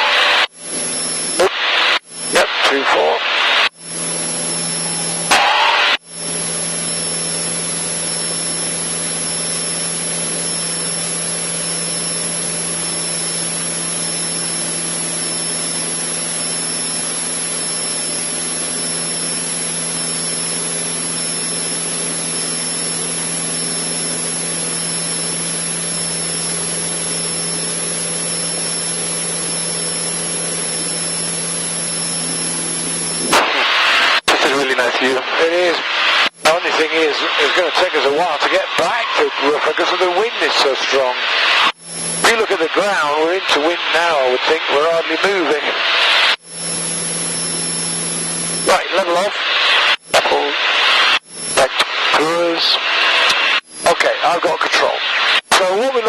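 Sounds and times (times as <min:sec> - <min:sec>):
small plane engine drone in cabin: 0:00.0 - 0:56.0.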